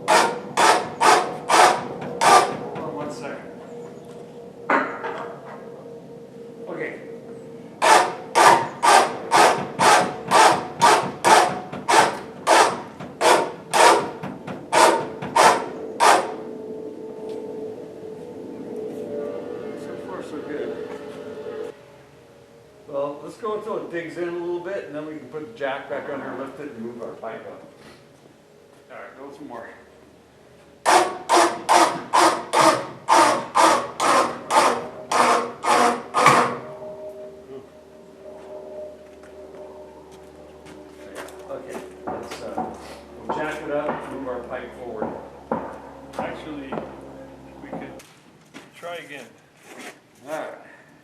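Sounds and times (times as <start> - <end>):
hand winch ratchet rasping: 0.0 - 2.6, 7.8 - 16.3, 30.9 - 36.6.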